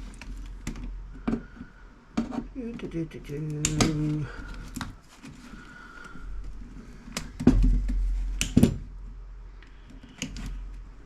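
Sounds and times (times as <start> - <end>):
low rumble of handling: 0.0 - 11.0
wire snips clicking and snapping: 3.4 - 5.0.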